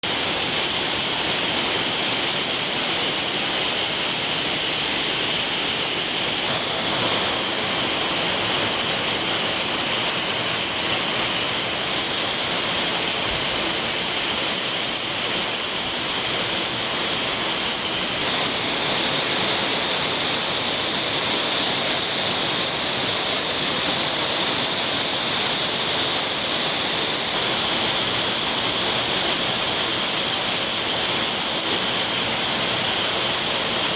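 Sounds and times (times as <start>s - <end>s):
heavy rain pouring: 0.1s - 33.9s.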